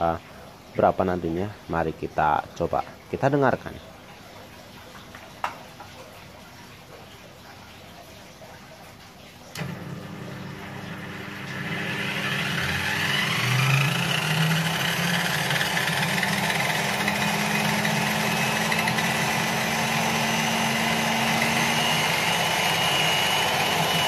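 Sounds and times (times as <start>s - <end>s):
table saw motor whining: 9.6s - 24.0s.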